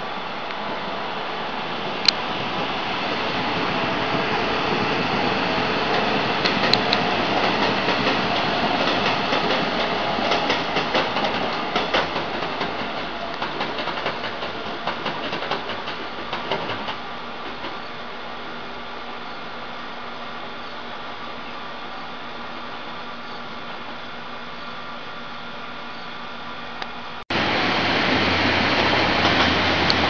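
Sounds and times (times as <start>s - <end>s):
train wheels clattering over rail joints: 4.1s - 17.9s, 28.8s - 30.0s.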